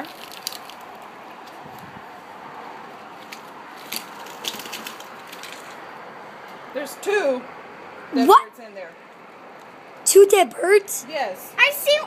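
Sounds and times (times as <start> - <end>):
debris rustling and crackling: 0.0 - 2.0, 2.8 - 5.9.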